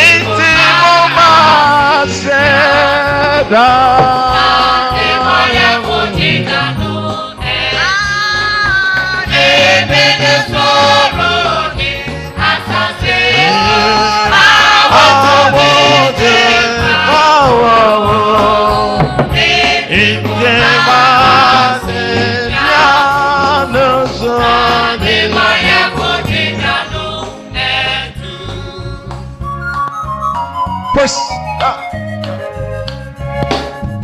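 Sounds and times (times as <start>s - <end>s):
gospel singing over a beat: 0.0s - 29.7s.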